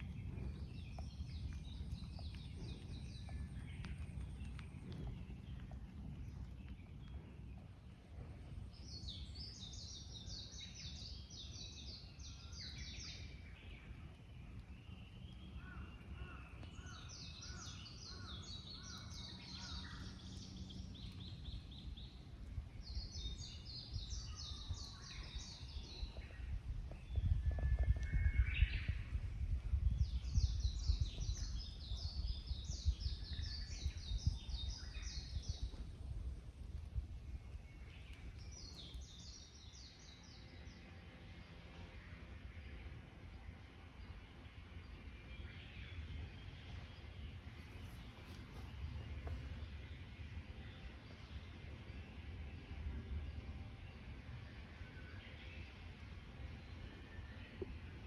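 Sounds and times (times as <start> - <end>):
low rumble: 0.0 - 58.0.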